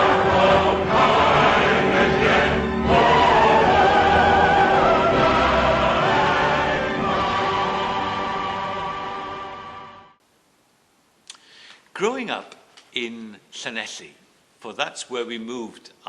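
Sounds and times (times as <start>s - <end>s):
choir singing: 0.0s - 10.2s
orchestra: 0.0s - 10.2s.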